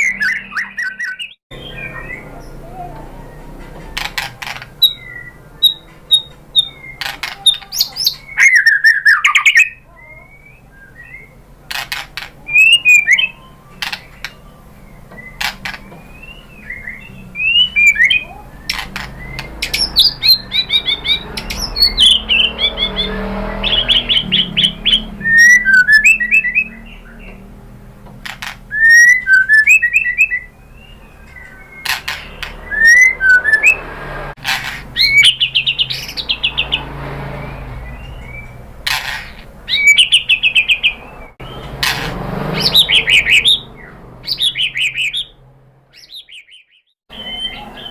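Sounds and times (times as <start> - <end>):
bird singing whistled phrases: 0.0 - 2.4, 4.8 - 11.4, 12.4 - 27.4, 28.7 - 33.9, 35.0 - 36.8, 39.7 - 41.7, 42.6 - 45.3, 46.0 - 47.9
sharp bird clicks: 3.9 - 9.7, 11.7 - 14.4, 15.2 - 22.4, 31.2 - 33.8.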